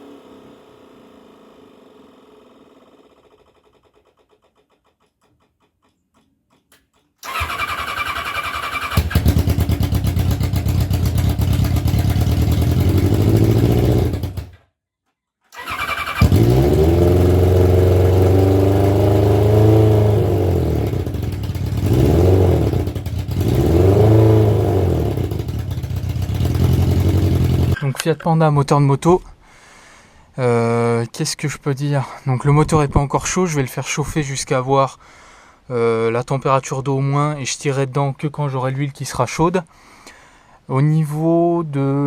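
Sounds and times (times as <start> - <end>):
motorcycle engine revving: 0.0 - 4.2, 7.2 - 14.6, 15.6 - 27.8.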